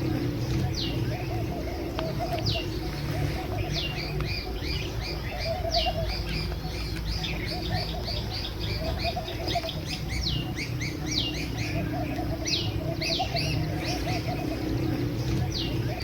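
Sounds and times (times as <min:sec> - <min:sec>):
lower warbling bird call: 0:00.0 - 0:16.0
steady low rumble: 0:00.0 - 0:16.0.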